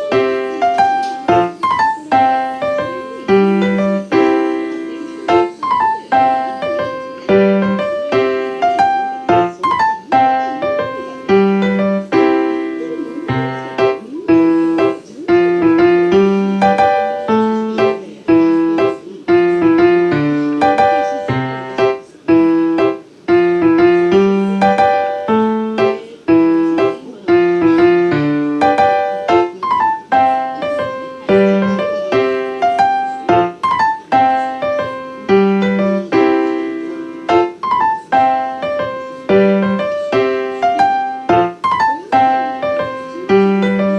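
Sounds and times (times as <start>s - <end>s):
solo piano piece: 0.0s - 43.9s.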